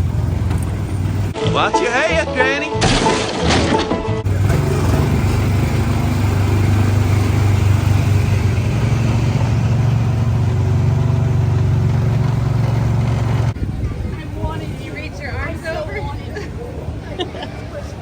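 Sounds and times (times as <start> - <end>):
small gasoline engine running: 4.3 - 13.6.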